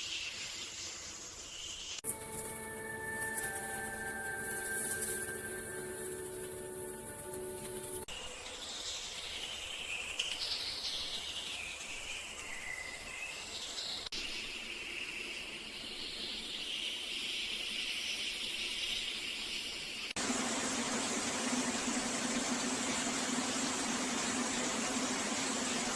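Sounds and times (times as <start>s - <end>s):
wavering chirps: 2.1s - 8.1s.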